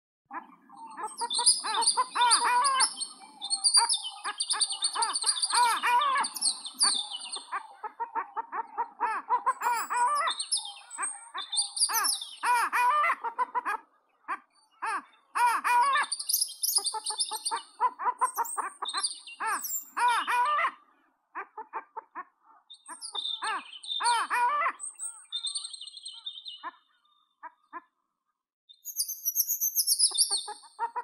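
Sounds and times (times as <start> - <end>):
thin whistled bird phrases: 0.3 - 7.8, 9.5 - 12.7, 14.4 - 20.5, 22.7 - 27.8, 28.7 - 30.7
birds chirping rapidly: 0.3 - 28.0, 28.7 - 31.0.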